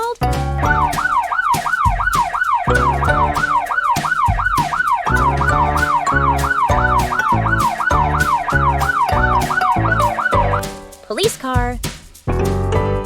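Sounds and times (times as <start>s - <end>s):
cheerful music with steady beat: 0.0s - 13.0s
police siren yelping: 0.6s - 10.6s.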